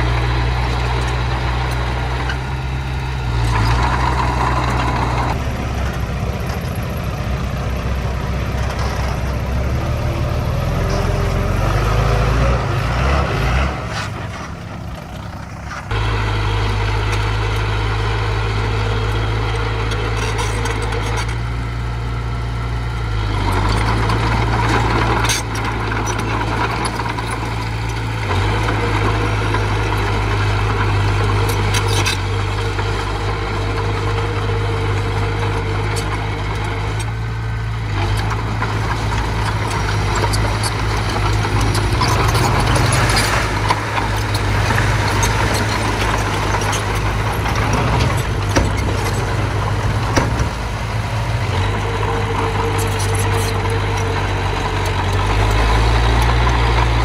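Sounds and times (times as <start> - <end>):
diesel engine of earthmover: 0.0 - 57.0.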